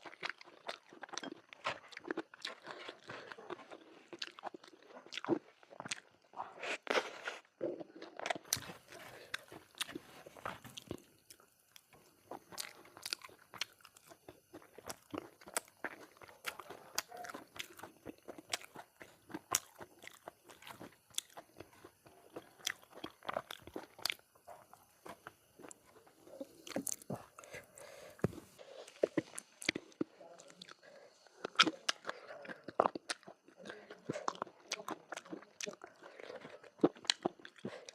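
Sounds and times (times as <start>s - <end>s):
person chewing crunchy food: 0.0s - 37.9s.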